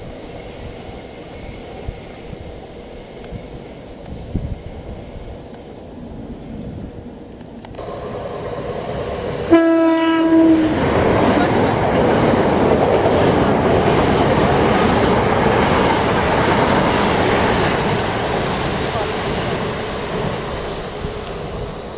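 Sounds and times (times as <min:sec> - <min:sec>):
train rushing past: 0:00.0 - 0:21.9
train horn: 0:09.5 - 0:10.8.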